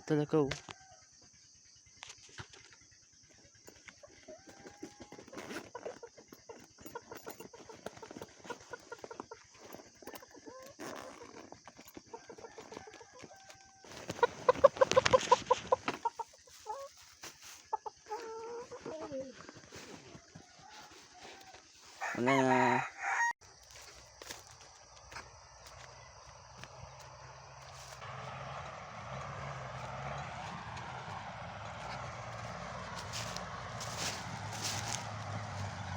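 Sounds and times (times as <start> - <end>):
chickens clucking and squawking: 3.3 - 10.8, 12.0 - 23.2
truck engine running: 26.2 - 35.9.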